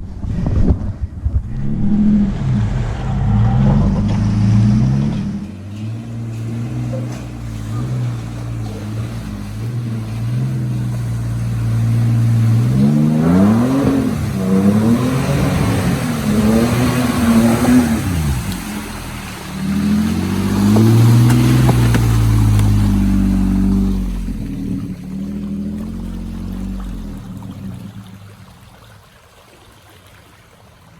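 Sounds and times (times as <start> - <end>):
dirt bike engine revving: 1.4 - 27.8.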